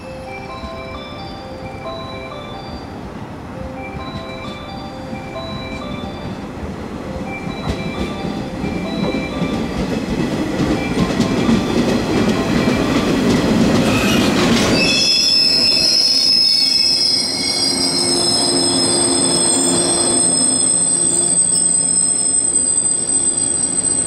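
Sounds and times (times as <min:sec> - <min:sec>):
train wheels rumbling on rails: 0:00.0 - 0:24.0
wheel and brake squeal: 0:13.8 - 0:24.0.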